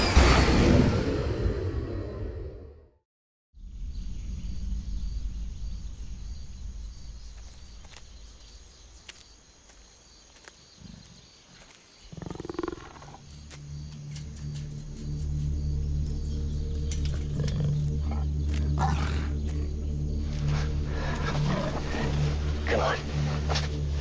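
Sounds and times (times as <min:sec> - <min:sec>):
big cat growling: 0:12.1 - 0:13.2, 0:17.2 - 0:19.7, 0:20.9 - 0:22.3.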